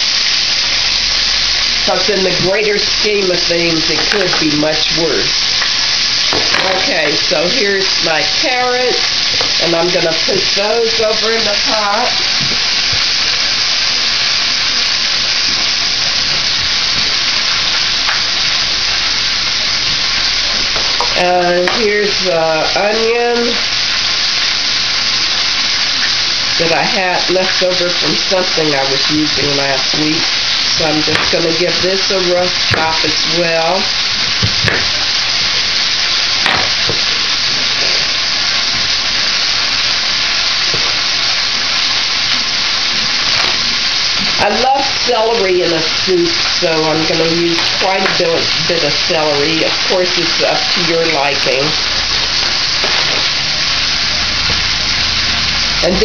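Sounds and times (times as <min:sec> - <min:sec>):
carrots sizzling in a pot: 0:00.0 - 0:56.0.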